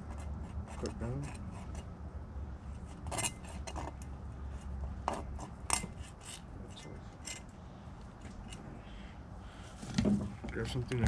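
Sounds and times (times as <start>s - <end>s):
steady low hum: 0.0s - 11.0s
knife scraping scaly hide: 2.8s - 7.5s.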